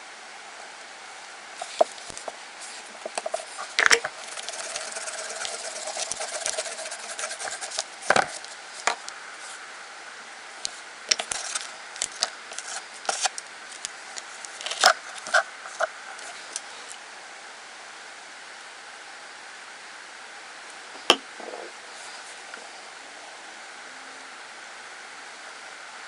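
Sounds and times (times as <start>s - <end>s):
steady background hiss: 0.0s - 26.0s
tools scraping and rubbing: 1.6s - 9.6s, 11.1s - 17.0s.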